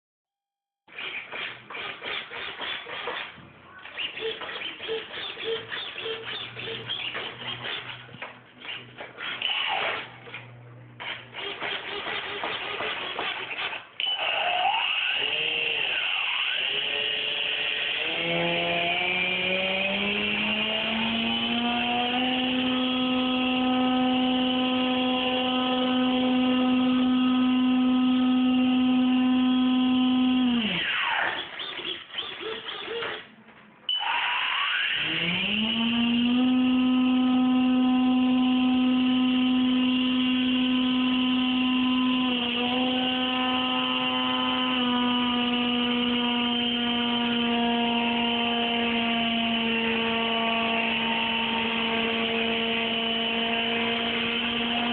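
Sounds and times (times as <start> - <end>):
model airplane motor spinning: 1.0 - 10.4, 11.0 - 33.2, 34.0 - 54.9.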